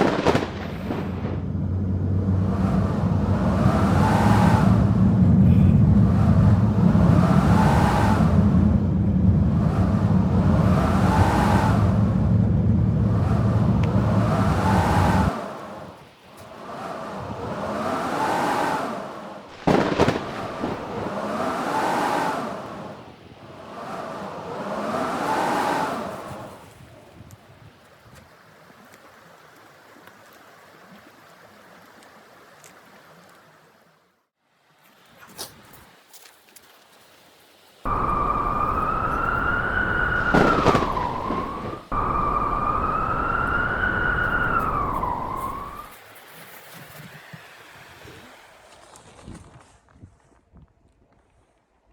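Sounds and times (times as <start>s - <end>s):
loud crack: 0.0s - 1.8s, 19.5s - 21.3s, 37.9s - 45.9s
blizzard wind howling: 0.0s - 30.9s, 37.8s - 50.0s
wolf howling: 37.9s - 45.9s.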